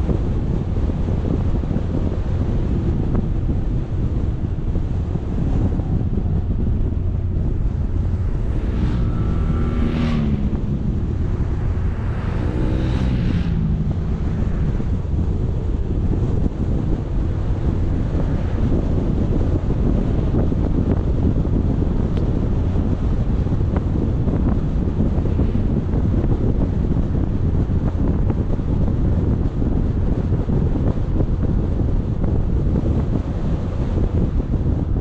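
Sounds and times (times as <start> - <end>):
wind buffeting microphone: 0.0 - 35.0
engine note rising and falling: 4.2 - 28.6.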